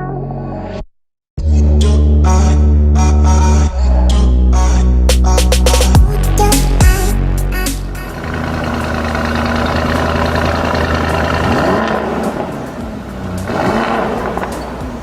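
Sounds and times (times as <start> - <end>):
car engine revving: 6.0 - 15.0.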